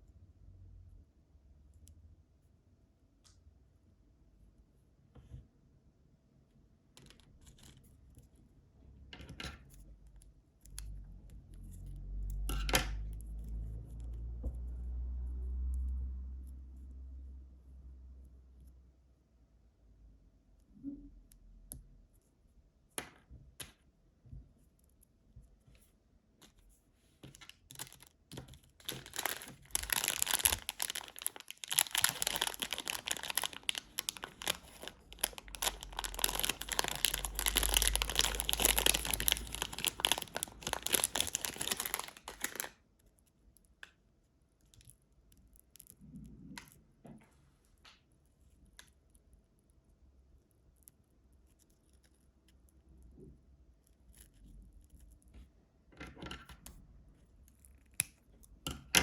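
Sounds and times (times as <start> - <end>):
candy wrapper crinkling: 27.3 - 43.7.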